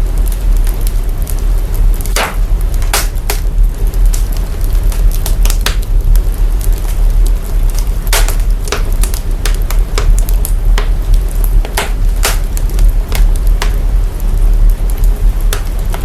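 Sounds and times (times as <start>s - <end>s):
deep rumble: 0.0s - 16.0s
fire crackling and popping: 0.0s - 16.0s.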